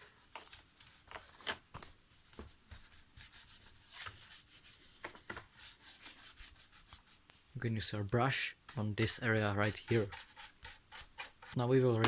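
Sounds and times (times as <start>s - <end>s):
rubbing plastic sensors: 8.7s - 11.6s.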